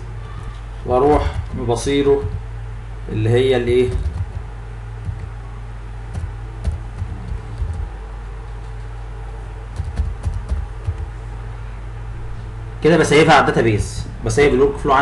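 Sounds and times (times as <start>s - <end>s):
low electrical hum: 0.0s - 15.0s
keyboard keystrokes: 3.9s - 5.4s, 6.1s - 8.9s, 9.8s - 11.1s.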